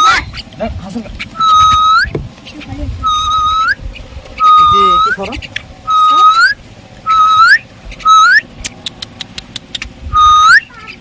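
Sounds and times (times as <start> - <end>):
rising whistles: 0.0 - 0.3, 1.4 - 2.1, 3.0 - 3.8, 4.4 - 8.5, 10.1 - 10.7
sharp clicks: 8.6 - 9.9.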